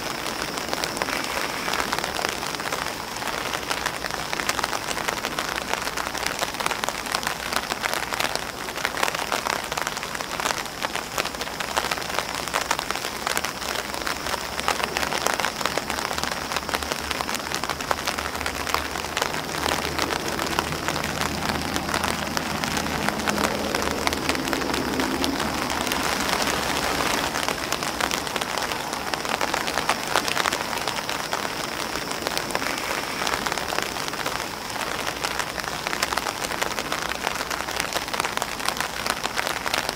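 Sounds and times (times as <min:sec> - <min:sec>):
rain drops tapping on leaves: 0:00.0 - 0:39.9
rain on an umbrella: 0:00.0 - 0:39.9.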